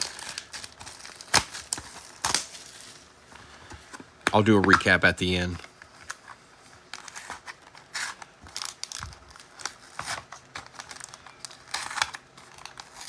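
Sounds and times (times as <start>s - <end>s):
plastic wrap crinkling: 0.0s - 3.1s, 4.3s - 13.0s.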